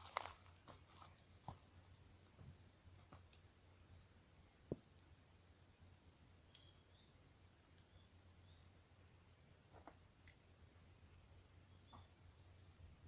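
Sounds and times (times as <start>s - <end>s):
campfire crackling and popping: 0.0s - 2.3s, 3.0s - 6.8s, 9.1s - 12.3s.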